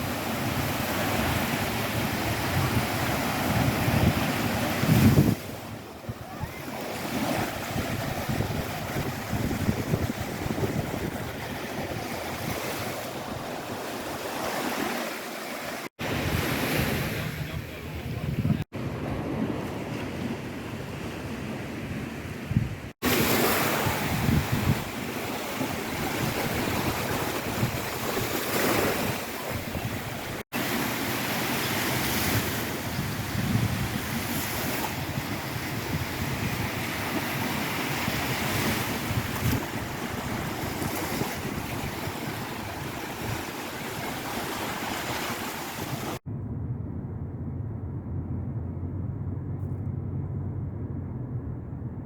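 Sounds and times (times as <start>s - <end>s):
wind buffeting microphone: 0.0s - 14.6s, 16.0s - 20.5s, 21.1s - 30.6s, 31.8s - 52.0s
surf: 0.0s - 20.5s, 23.0s - 46.3s
wind rushing: 0.8s - 14.2s.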